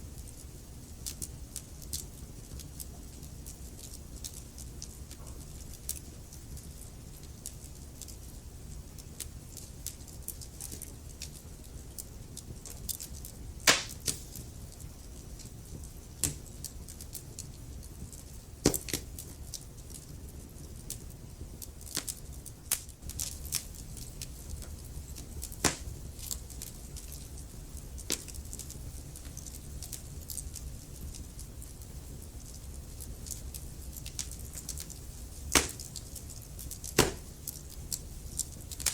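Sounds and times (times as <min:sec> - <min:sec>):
wood fire crackling: 0:00.0 - 0:38.9
loud fire pops: 0:13.0 - 0:14.5, 0:18.6 - 0:19.3, 0:21.8 - 0:27.2, 0:28.0 - 0:30.0, 0:34.0 - 0:38.9.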